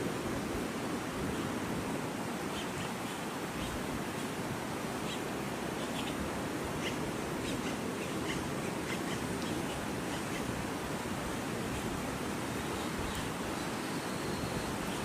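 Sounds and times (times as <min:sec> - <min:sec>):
fast-flowing floodwater rushing: 0:00.0 - 0:15.0
birds chirping: 0:06.8 - 0:10.5, 0:12.5 - 0:15.0.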